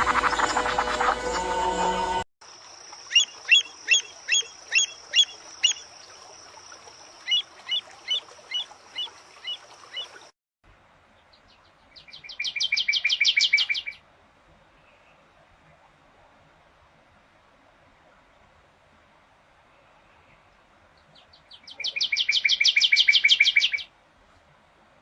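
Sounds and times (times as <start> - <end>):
bird chirping: 3.0 - 6.0, 11.3 - 14.0, 21.0 - 23.9
bird trilling: 3.1 - 5.8.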